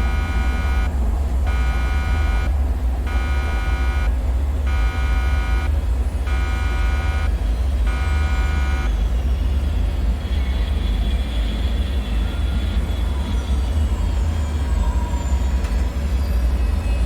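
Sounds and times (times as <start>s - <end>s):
high whine sliding down: 0.0s - 7.3s
buzzing alarm beeps: 0.0s - 9.1s
deep steady rumble: 0.0s - 9.3s.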